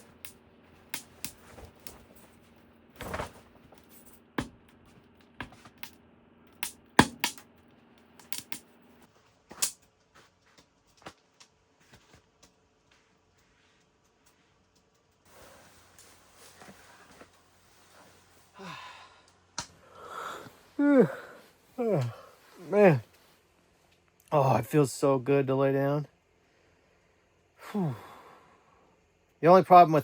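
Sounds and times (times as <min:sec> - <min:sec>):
sharp clicks and knocks: 0:04.4 - 0:08.7.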